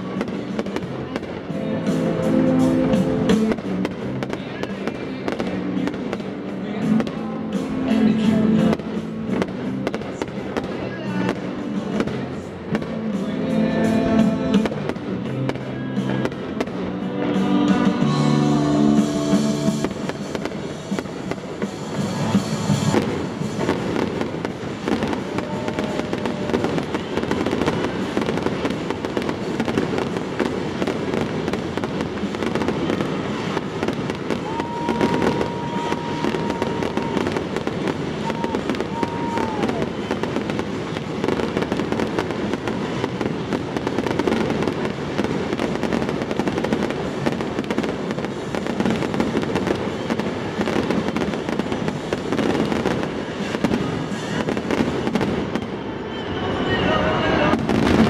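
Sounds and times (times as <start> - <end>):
fireworks crackling and popping: 0.0 - 58.0
high held tone: 13.1 - 24.2.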